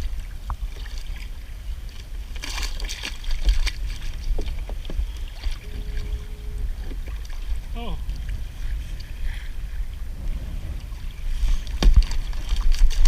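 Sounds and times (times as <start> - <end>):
wind rumbling on microphone: 0.0 - 13.0
water splash: 10.0 - 13.0.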